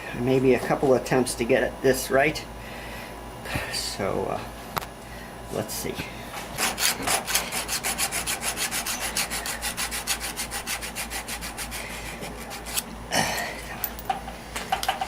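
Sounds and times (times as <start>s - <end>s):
hand tool scraping copper tubing: 6.5s - 12.9s.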